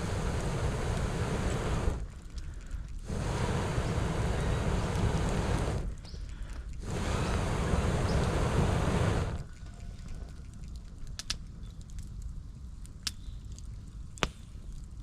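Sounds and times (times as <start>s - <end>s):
air blown into campfire: 0.0s - 2.1s, 2.8s - 9.5s.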